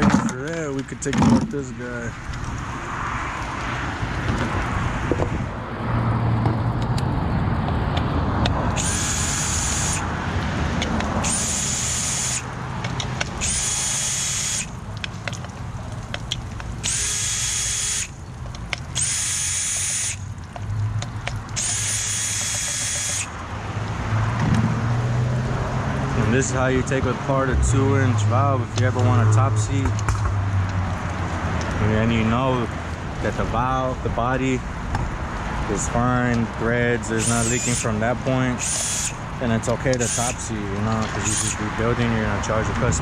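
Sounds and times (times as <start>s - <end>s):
power drill-driver whining: 8.7s - 10.1s, 11.2s - 12.5s, 13.4s - 14.8s, 16.8s - 18.2s, 19.0s - 20.2s, 21.6s - 23.3s, 37.1s - 38.0s, 38.6s - 39.2s, 39.9s - 40.4s, 41.0s - 41.6s.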